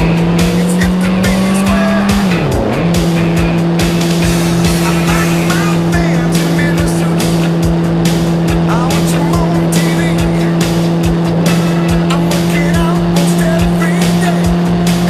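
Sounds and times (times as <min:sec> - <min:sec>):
motorcycle engine running: 0:00.0 - 0:15.0
moving traffic: 0:00.0 - 0:15.0.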